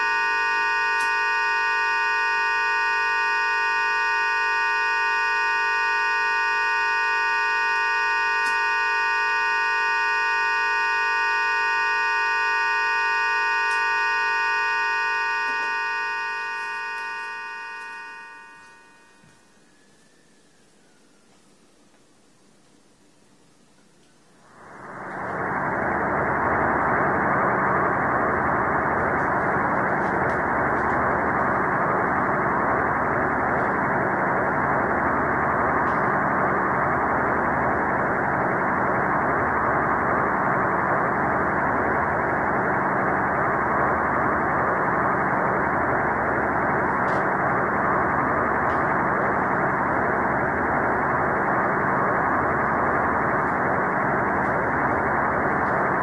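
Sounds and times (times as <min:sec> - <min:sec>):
faint hum: 0:00.0 - 0:56.0
radio static hiss: 0:21.4 - 0:56.0
low pulsing: 0:24.4 - 0:56.0.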